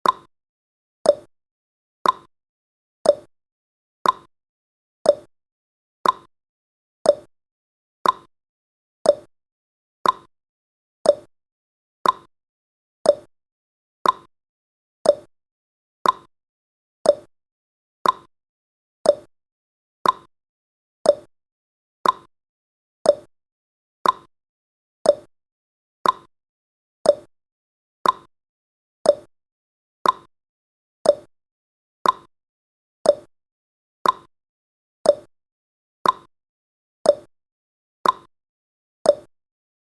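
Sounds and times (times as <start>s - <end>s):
clock ticking: 2.0s - 2.3s, 4.0s - 4.3s, 6.0s - 6.3s, 8.0s - 8.3s, 10.0s - 10.3s, 12.0s - 12.3s, 14.0s - 14.3s, 15.1s - 15.3s, 16.0s - 16.3s, 18.0s - 18.3s, 20.0s - 20.3s, 21.1s - 21.3s, 22.0s - 22.3s, 24.0s - 24.3s, 26.0s - 26.3s, 28.0s - 28.3s, 29.1s - 29.3s, 30.0s - 30.3s, 31.1s - 31.3s, 32.0s - 32.3s, 33.1s - 33.3s, 34.0s - 34.3s, 35.1s - 35.3s, 36.0s - 36.3s, 38.0s - 38.3s, 39.1s - 39.3s.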